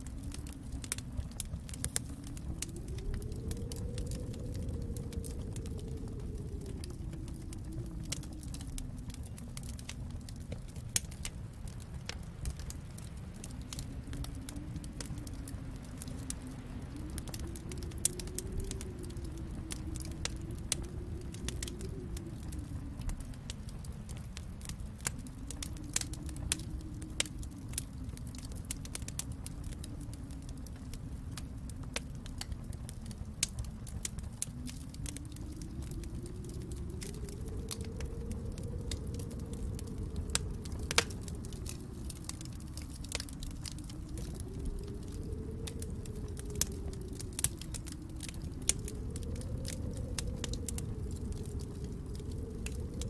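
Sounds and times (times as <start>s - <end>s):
fire crackles and pops: 0.0s - 53.0s
low fire rumble: 0.0s - 53.0s.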